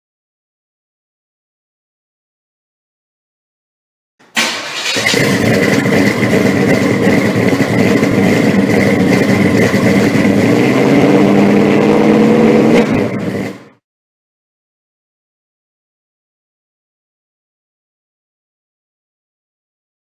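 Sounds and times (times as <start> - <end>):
car engine starting and running: 4.2 - 13.8.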